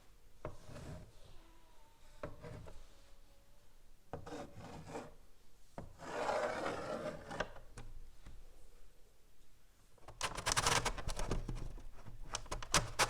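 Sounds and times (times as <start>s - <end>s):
chalk scratching on blackboard: 0.5s - 1.1s, 4.2s - 5.2s, 6.0s - 7.4s.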